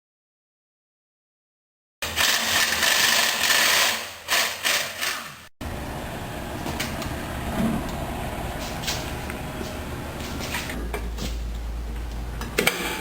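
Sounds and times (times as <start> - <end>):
loud mechanical noise in spurts: 2.0 - 10.8.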